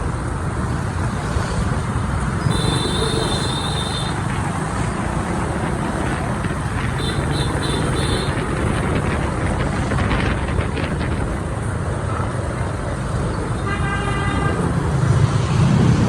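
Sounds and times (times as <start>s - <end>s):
wind rushing: 0.0s - 12.5s
motorbike engine: 0.0s - 12.9s
road noise: 0.0s - 16.0s.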